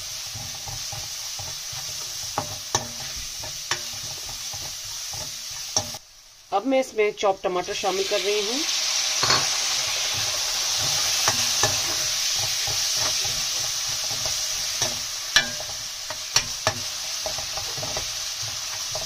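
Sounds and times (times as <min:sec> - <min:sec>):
tomatoes sizzling in hot oil: 0:00.0 - 0:19.0
spoon clicking against pan: 0:14.8 - 0:18.1.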